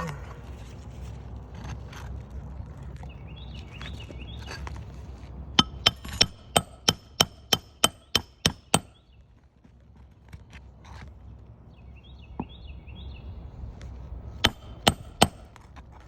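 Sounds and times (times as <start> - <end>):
hammer driving a nail: 5.6 - 9.0, 14.4 - 15.6.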